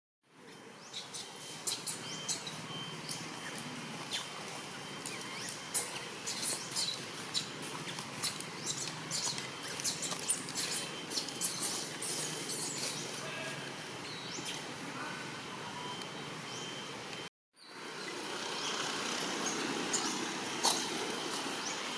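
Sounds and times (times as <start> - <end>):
baby monkey squeaking: 8.2 - 13.0.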